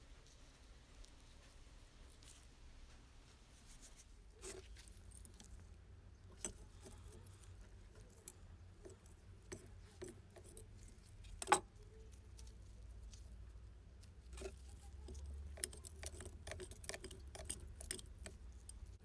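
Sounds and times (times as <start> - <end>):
faint low hum: 0.0 - 19.0
small metal parts clinking: 6.3 - 13.2, 14.3 - 19.0.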